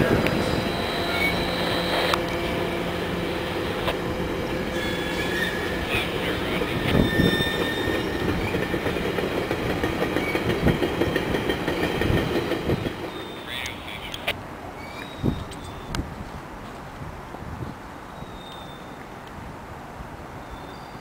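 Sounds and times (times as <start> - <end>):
train wheels rumbling on rails: 0.0 - 14.4
high wheel squeals: 0.3 - 2.2, 4.7 - 8.8, 13.1 - 13.6.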